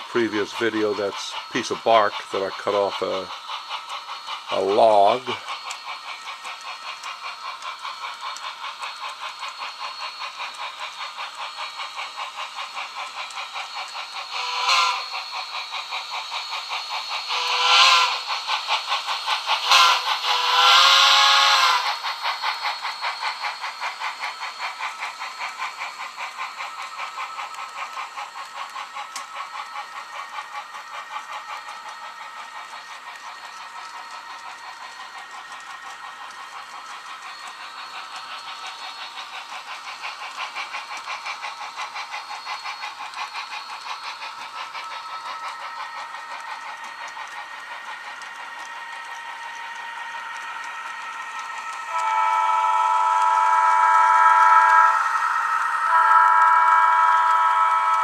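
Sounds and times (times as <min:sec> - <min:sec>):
model locomotive engine sound: 0:00.0 - 0:58.0
locomotive horn: 0:51.9 - 0:53.5.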